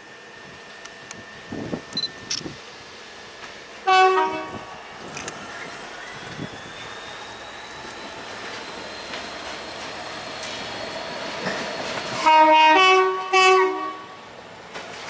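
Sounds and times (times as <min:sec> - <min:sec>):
train running: 0:00.0 - 0:15.0
train horn blast: 0:03.8 - 0:04.8, 0:12.1 - 0:14.2.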